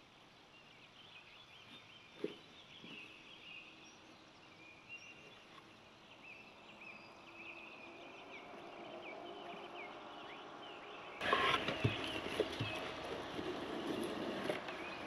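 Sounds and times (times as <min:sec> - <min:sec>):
birds chirping: 0:00.0 - 0:15.0
rustling and knocks: 0:11.2 - 0:14.8.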